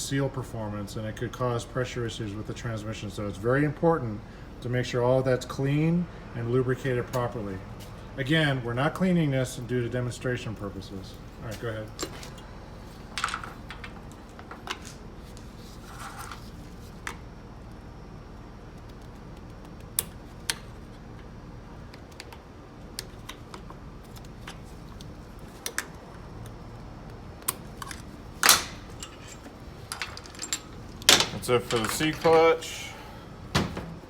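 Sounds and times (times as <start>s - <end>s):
scraping rustles: 11.1s - 17.0s
metal parts clicking and clinking: 13.1s - 15.0s, 27.4s - 32.7s.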